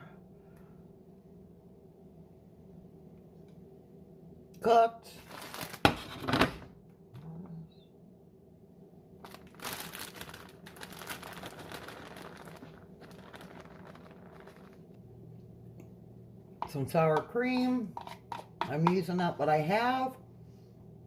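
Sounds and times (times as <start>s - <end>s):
plastic packaging crinkling: 5.2s - 6.2s, 9.2s - 15.0s.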